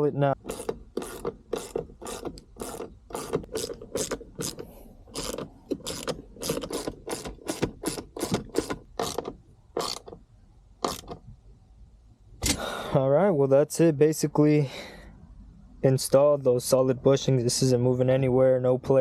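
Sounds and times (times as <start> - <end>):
ratchet wrench clicking: 0.4 - 10.2, 10.8 - 11.2.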